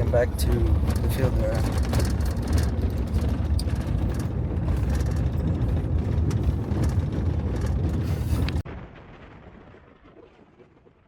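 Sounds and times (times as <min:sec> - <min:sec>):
vehicle engine and road rumble: 0:00.0 - 0:08.8.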